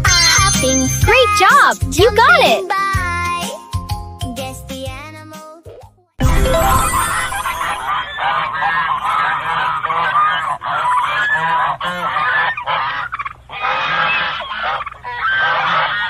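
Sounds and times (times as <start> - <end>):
flock of birds honking: 7.6 - 16.0.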